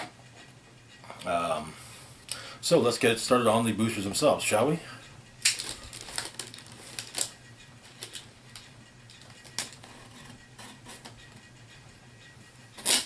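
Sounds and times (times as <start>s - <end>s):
packaging clicks and crinkles: 5.4s - 7.3s.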